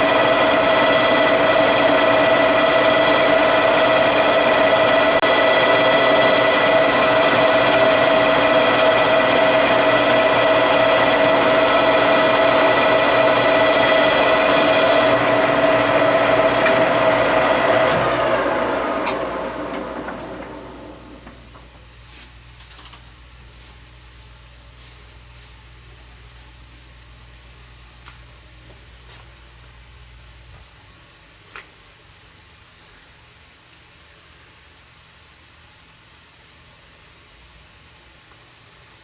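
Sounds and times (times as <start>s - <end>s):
metal lathe whine: 0.0s - 21.5s.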